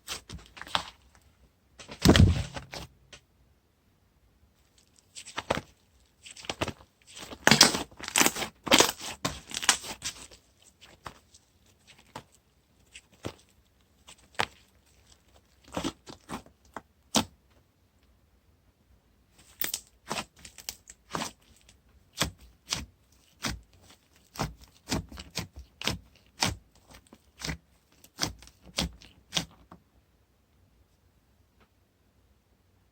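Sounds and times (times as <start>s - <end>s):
hands squishing sticky slime: 4.8s - 17.3s, 19.6s - 29.6s.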